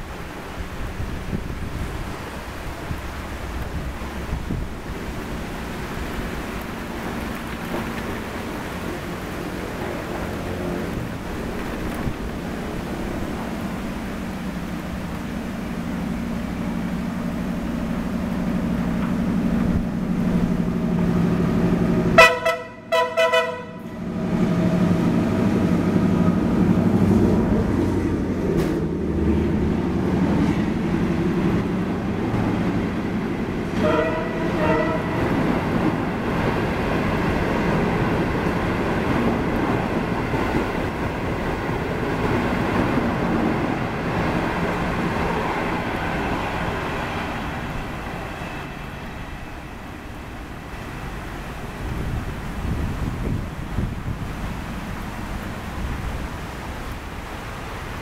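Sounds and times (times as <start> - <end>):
heavy rain hissing: 0.0 - 22.9, 23.7 - 58.0
diesel locomotive engine drone: 0.0 - 58.0
train rumbling past: 0.0 - 58.0
locomotive horn blast: 22.0 - 24.8, 33.7 - 35.5.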